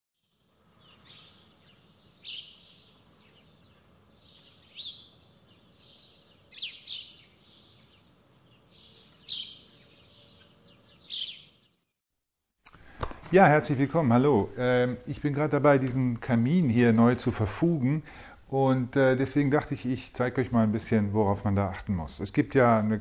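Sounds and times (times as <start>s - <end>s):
songbird singing high phrases: 0.3s - 12.0s
faint background hiss: 12.7s - 23.0s.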